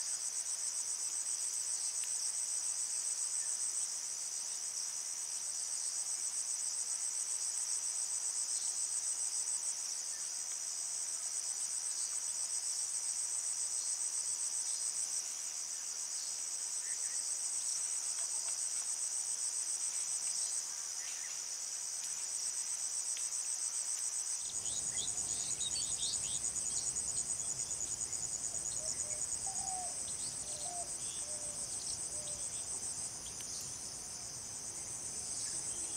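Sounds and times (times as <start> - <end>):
insects pulsing trill: 24.3 - 35.9.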